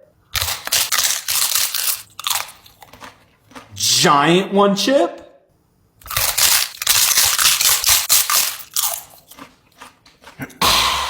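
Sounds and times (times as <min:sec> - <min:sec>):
crunching chewing of chip: 0:00.3 - 0:04.0, 0:06.0 - 0:10.7.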